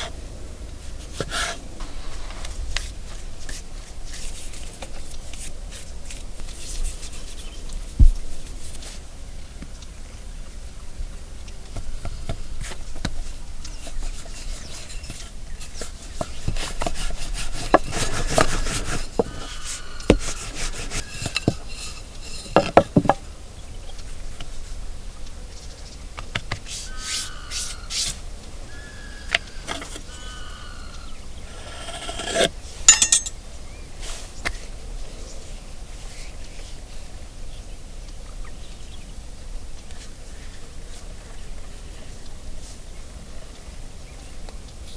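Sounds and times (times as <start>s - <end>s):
kitchen utensils scraping and clinking: 20.2s - 23.2s, 31.5s - 33.4s
birds chirping: 26.8s - 34.0s.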